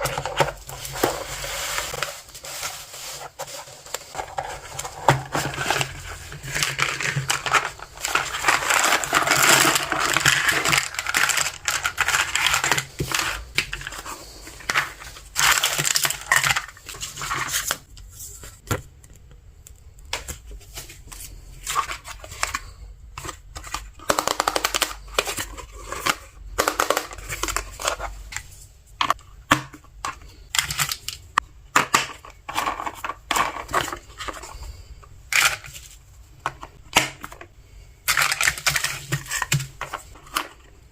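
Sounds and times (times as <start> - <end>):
plastic packaging crinkling: 0.0 - 17.9.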